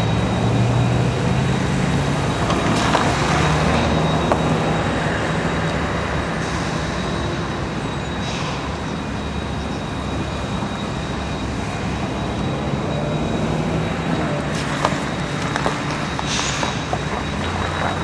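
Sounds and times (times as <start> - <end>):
high-pitched tone: 9.0 - 18.0.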